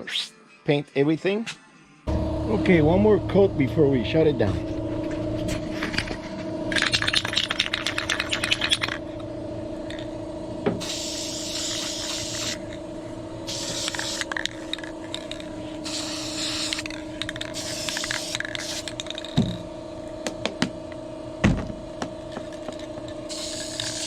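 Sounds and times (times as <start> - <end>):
steady low hum: 2.1 - 24.0
spray can ball rattling: 6.8 - 9.0, 10.8 - 12.7, 13.5 - 19.4, 22.5 - 24.0
spray hissing from nozzle: 10.8 - 12.6, 13.5 - 14.3, 15.8 - 16.8, 17.6 - 18.9, 23.3 - 24.0.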